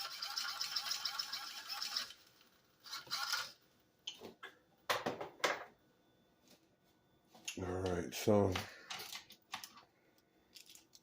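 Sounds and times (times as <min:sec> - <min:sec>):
fast mechanical rattle: 0:00.0 - 0:03.6.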